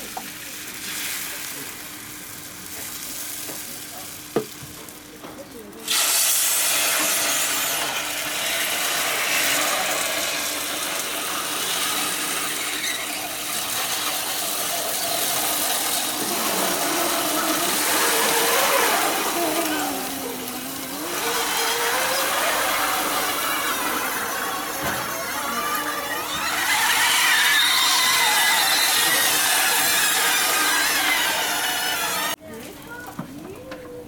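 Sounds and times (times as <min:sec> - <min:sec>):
food sizzling: 0:05.8 - 0:32.4.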